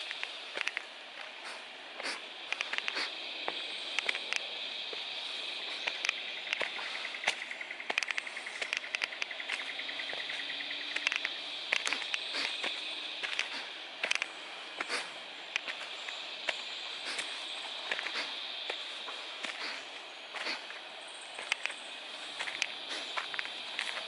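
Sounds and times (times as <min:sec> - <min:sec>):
high-pitched insect drone: 0:00.0 - 0:24.0
footsteps crunching on leaf litter: 0:08.2 - 0:24.0.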